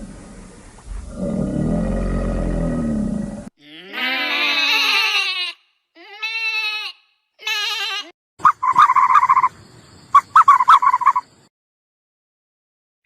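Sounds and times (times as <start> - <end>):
animal calls wavering pitch: 8.4 - 9.5, 10.2 - 11.3
rapid rattling animal calls: 8.4 - 11.5.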